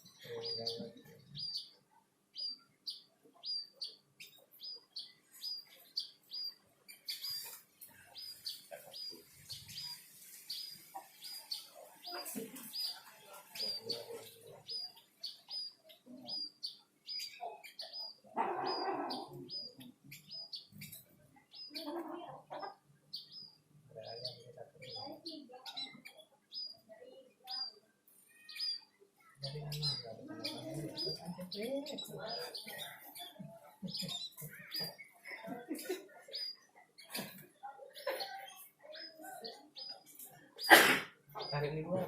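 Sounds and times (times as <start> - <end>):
birds chirping high: 0.0 - 42.0.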